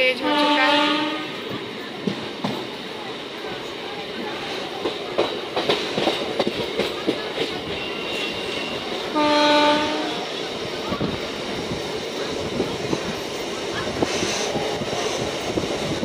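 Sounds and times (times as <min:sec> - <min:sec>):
train running noise: 0:00.0 - 0:16.0
train horn blast: 0:00.2 - 0:01.5, 0:07.8 - 0:10.3
wheels clacking over rail joints: 0:04.2 - 0:09.2.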